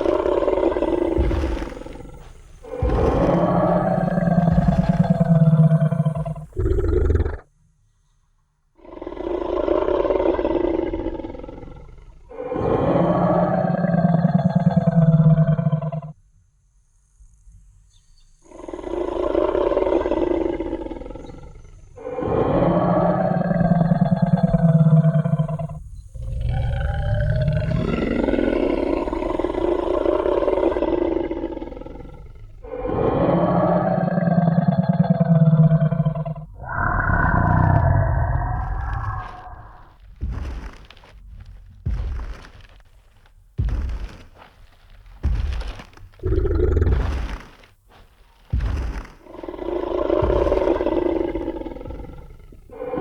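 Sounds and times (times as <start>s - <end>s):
deep dinosaur roar: 0.0s - 7.5s, 8.8s - 16.1s, 18.5s - 53.0s.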